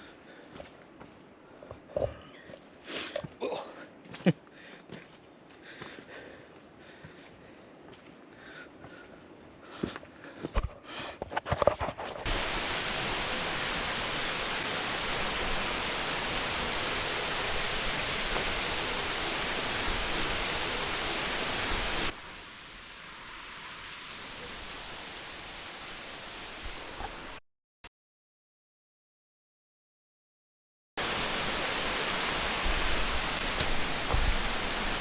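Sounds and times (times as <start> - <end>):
waterfall rushing: 12.3 - 27.4, 31.0 - 35.0.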